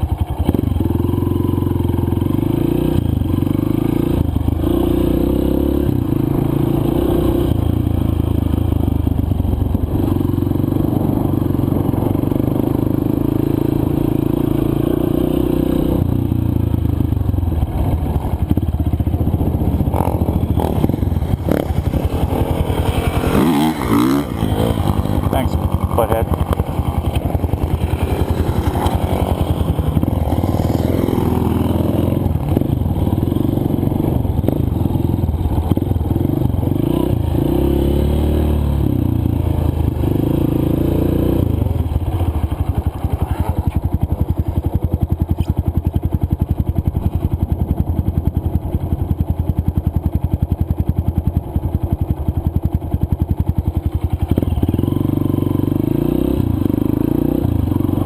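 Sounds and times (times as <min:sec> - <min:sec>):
dirt bike engine revving: 0:00.4 - 0:08.4, 0:09.9 - 0:44.6, 0:54.2 - 0:58.0.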